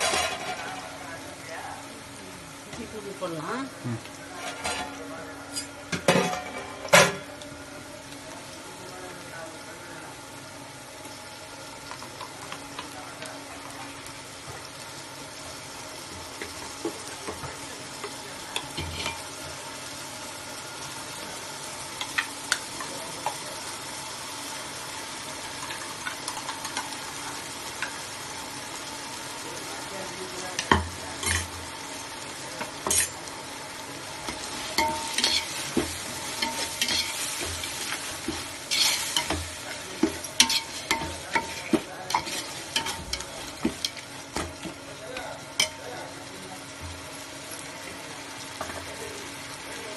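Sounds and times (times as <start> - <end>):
food sizzling in a pan: 0.0 - 49.9
spoon scraping and knocking pan: 34.2 - 45.8.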